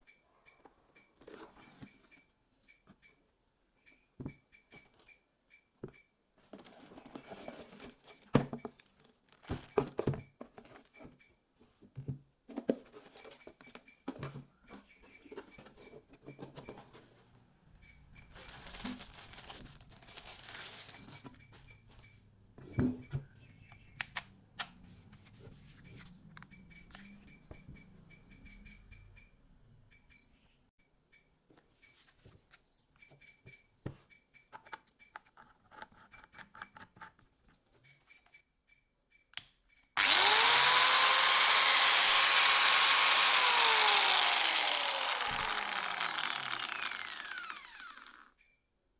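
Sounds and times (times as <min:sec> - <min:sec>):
packaging rustling and tearing: 0:08.9 - 0:09.7, 0:18.3 - 0:21.4.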